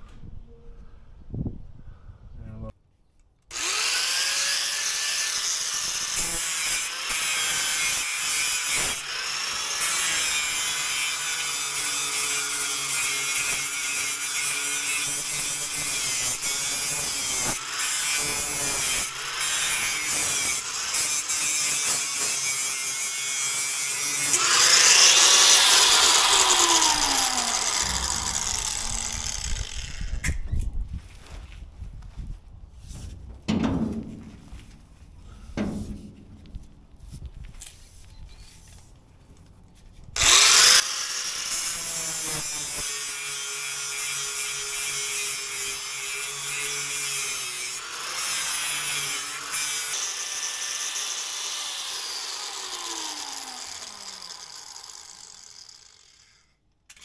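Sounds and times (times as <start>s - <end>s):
electric grinder sharpening blades: 3.5s - 30.4s, 40.2s - 57.0s.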